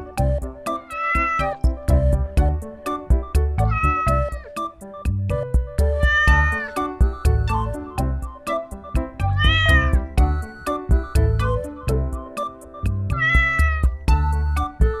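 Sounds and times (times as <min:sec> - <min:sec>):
background music with beat: 0:00.0 - 0:15.0
cat meowing: 0:00.7 - 0:01.6, 0:03.6 - 0:04.6, 0:06.0 - 0:06.9, 0:09.4 - 0:10.0, 0:13.1 - 0:14.0.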